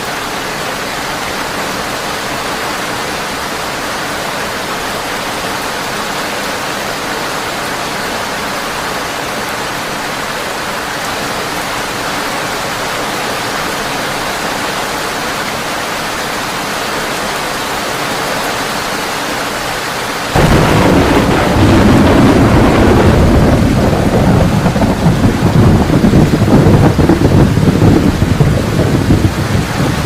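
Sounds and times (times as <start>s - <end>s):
heavy rain on a tin roof: 0.0s - 30.0s
thunder rumbling: 20.3s - 30.0s.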